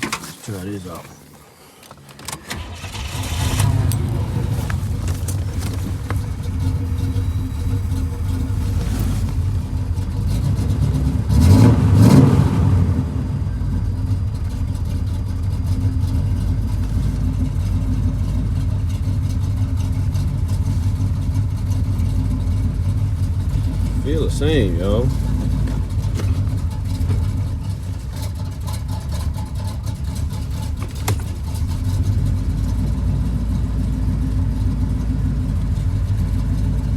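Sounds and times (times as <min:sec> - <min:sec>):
engine idling rough and revving: 0:00.0 - 0:36.9.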